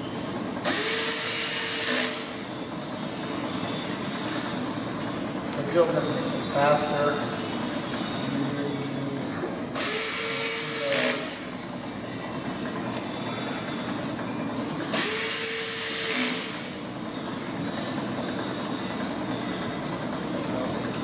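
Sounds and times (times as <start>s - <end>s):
steady background noise: 0.0s - 21.0s
power drill whining: 0.6s - 2.4s, 9.8s - 11.4s, 14.9s - 16.7s.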